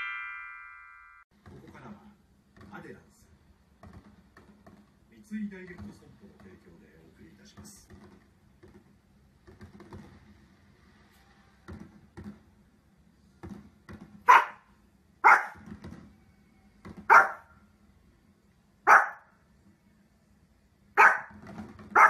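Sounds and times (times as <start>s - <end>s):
small dog barking: 14.2s - 15.6s, 17.1s - 17.5s, 18.8s - 19.3s, 21.0s - 22.0s.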